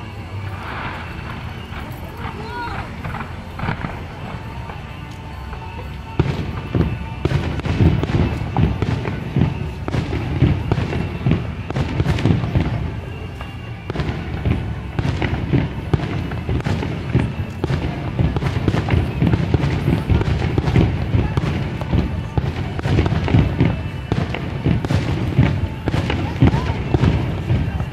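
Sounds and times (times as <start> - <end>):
fireworks bangs and booms: 0.0 - 27.9
music playing: 0.0 - 27.9.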